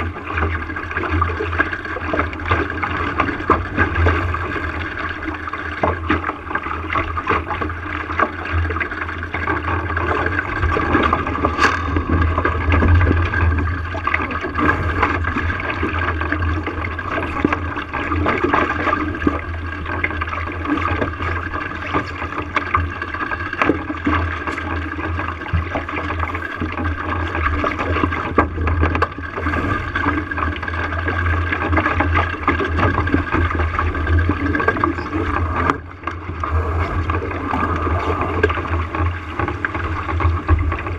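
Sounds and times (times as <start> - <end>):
low rumble: 0.0 - 22.3, 32.2 - 40.9
water rushing along boat hull: 0.0 - 40.9.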